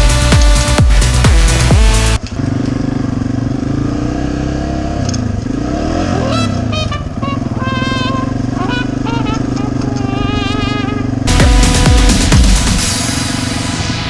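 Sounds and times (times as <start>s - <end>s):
electronic dance music: 0.0s - 2.2s, 11.3s - 14.0s
dirt bike engines running: 0.0s - 12.9s
high engine whine: 0.0s - 14.0s.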